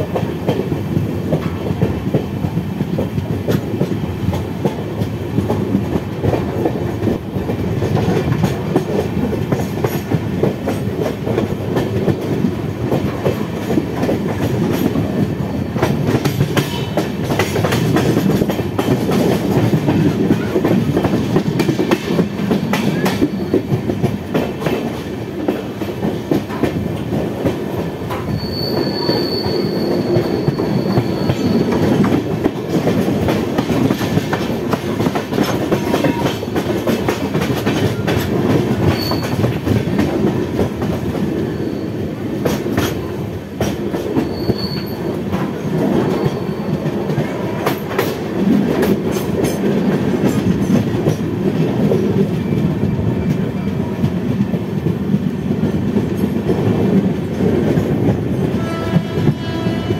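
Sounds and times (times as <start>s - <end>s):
train wheels rumbling on track: 0.0s - 59.9s
high wheel squeal: 28.3s - 32.0s, 38.9s - 39.4s, 44.2s - 45.1s.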